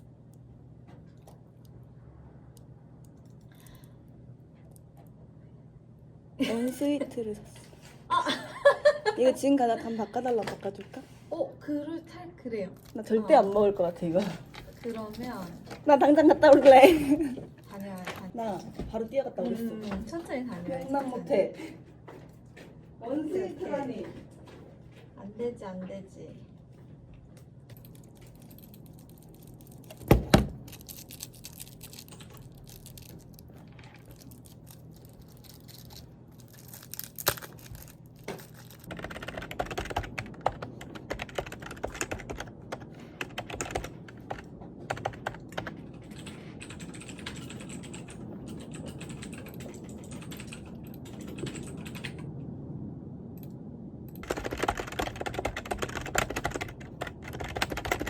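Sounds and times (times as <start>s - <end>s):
typing on computer keyboard: 27.7s - 52.3s, 54.2s - 58.0s.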